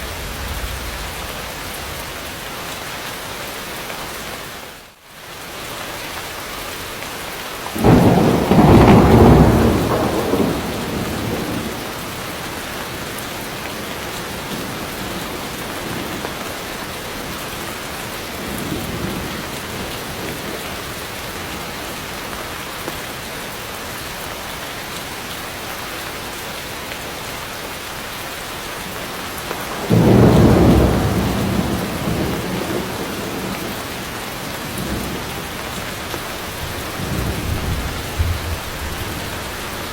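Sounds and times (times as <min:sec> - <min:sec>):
thunder clap rumbling: 0:00.0 - 0:02.5, 0:07.8 - 0:13.0, 0:29.6 - 0:39.9
heavy rain falling: 0:00.0 - 0:39.9.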